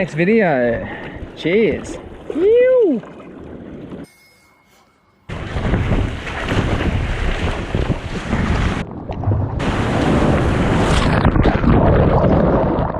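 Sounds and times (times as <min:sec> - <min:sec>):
sea waves: 0:00.0 - 0:12.8
wind buffeting microphone: 0:05.3 - 0:12.9.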